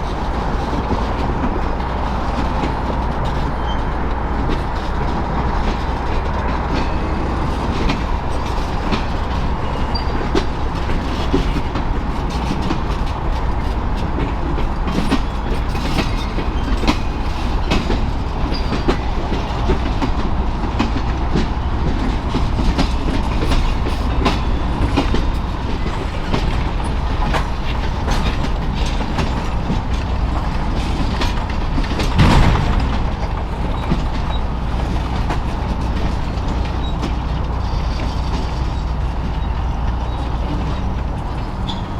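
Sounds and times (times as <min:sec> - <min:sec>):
train wheels clicking over rail joints: 0:00.0 - 0:41.9
loud thump: 0:32.1 - 0:34.4.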